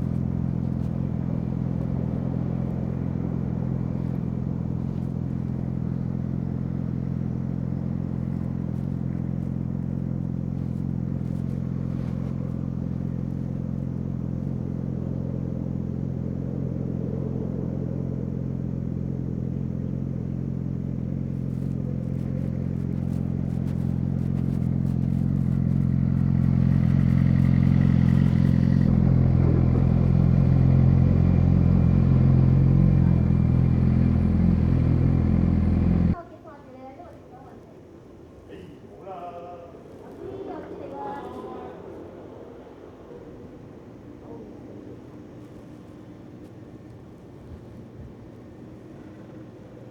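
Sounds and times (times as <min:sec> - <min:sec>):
motorcycle engine idling: 0:00.0 - 0:36.2.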